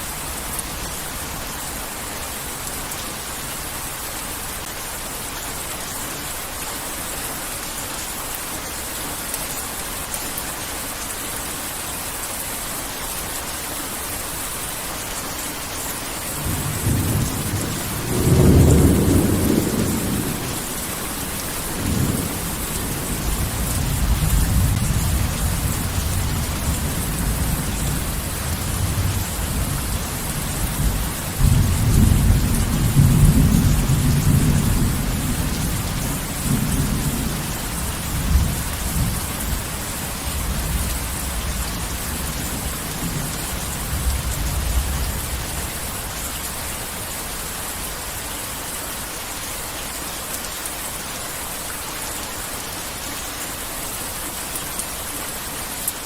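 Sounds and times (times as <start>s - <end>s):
heavy rain falling: 0.0s - 56.0s
thunder rumbling: 16.4s - 39.8s.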